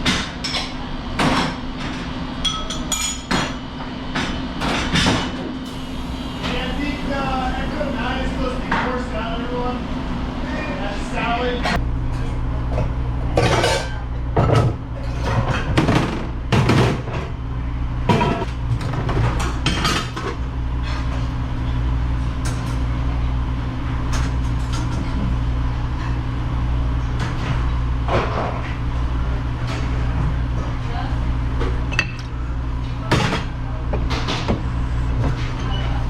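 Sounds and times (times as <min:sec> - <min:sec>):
dishes and silverware clattering: 0:00.0 - 0:03.6, 0:13.4 - 0:16.0
low machine hum: 0:03.8 - 0:19.4.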